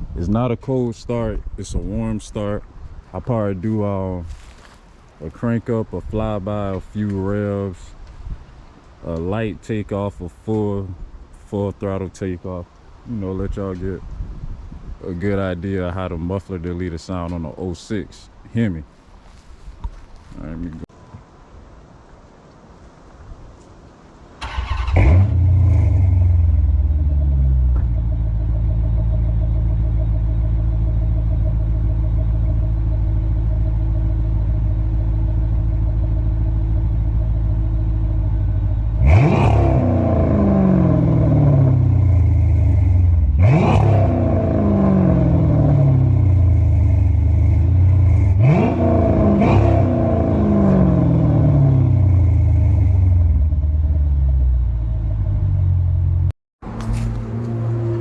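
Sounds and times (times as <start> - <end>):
car engine revving: 24.4 - 58.0
car engine starting: 24.4 - 58.0
car engine idling: 24.5 - 58.0.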